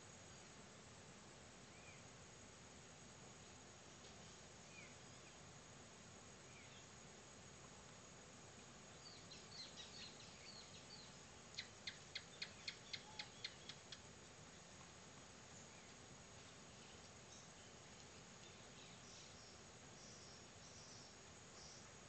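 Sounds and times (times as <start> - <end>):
faint high insect drone: 0.0 - 22.0
faint bird calls: 9.0 - 14.0.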